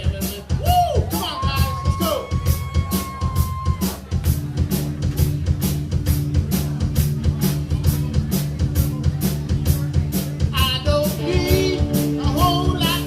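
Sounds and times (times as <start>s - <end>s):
bass guitar: 0.0s - 13.0s
drum kit beat: 0.0s - 13.0s.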